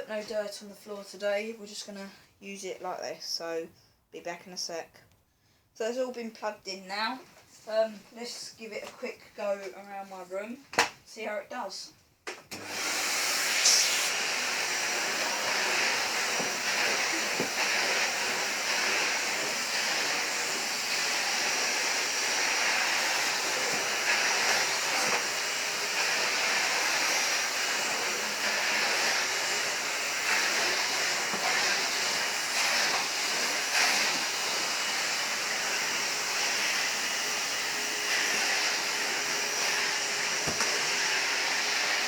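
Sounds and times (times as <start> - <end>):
vacuum cleaner running: 12.5 - 42.0.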